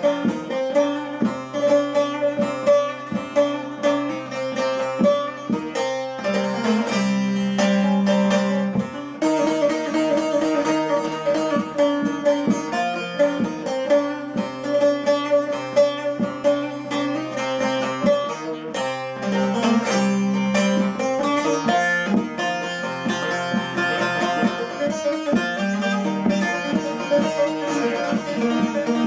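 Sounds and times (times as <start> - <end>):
plucked lute playing: 0.0 - 29.0.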